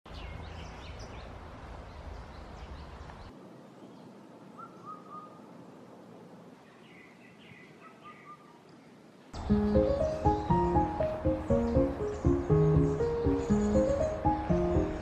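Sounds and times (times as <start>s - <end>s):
steady outdoor hiss: 0.1s - 15.0s
birds chirping and whistling: 4.6s - 5.4s, 9.4s - 15.0s.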